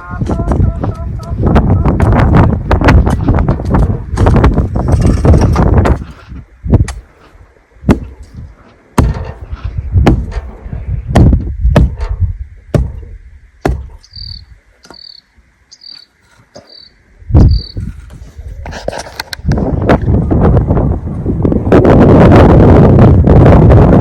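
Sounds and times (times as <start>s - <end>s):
dull thuds: 0.2s - 7.2s, 7.8s - 15.0s.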